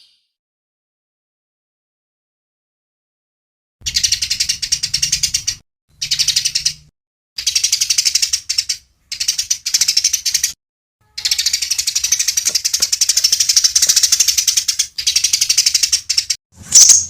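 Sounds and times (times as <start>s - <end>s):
songbird rattling trills: 3.8s - 17.0s.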